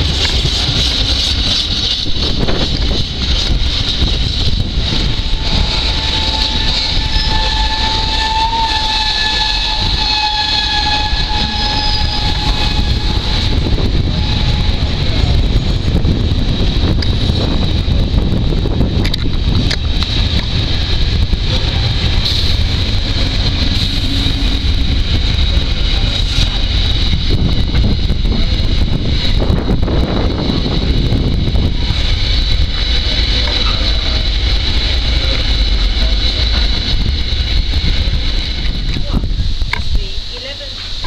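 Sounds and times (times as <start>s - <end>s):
wheels clacking over rail joints: 0.0s - 8.0s
steel wheels rumbling on rails: 0.0s - 41.0s.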